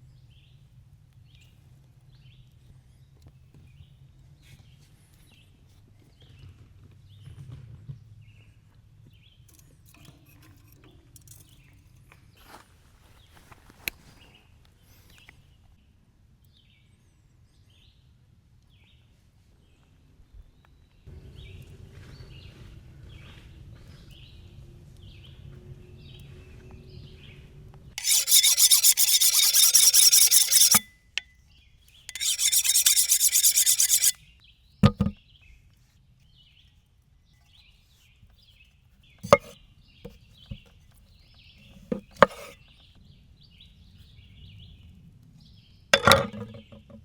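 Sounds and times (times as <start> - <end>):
hand tool rasping on wood: 28.0 - 30.9, 32.1 - 34.2.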